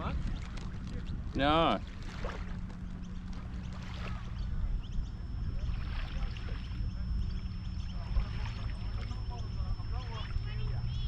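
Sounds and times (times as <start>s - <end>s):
faint distant voices: 0.0s - 11.0s
wind rumbling on microphone: 0.0s - 11.0s
thin high whine: 2.5s - 11.0s.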